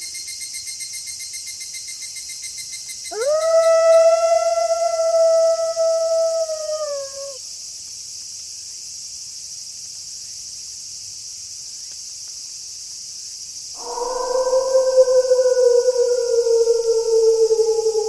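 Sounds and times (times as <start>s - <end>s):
wolf howling: 3.1s - 7.4s, 13.8s - 18.0s.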